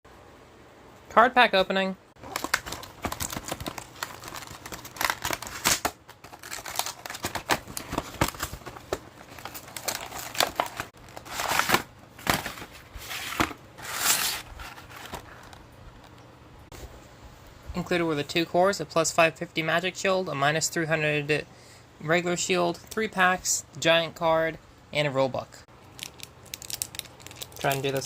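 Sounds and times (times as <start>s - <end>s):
packaging tearing: 2.2s - 15.6s, 26.0s - 28.0s
plastic and paper crinkling: 2.2s - 16.2s, 25.9s - 28.0s.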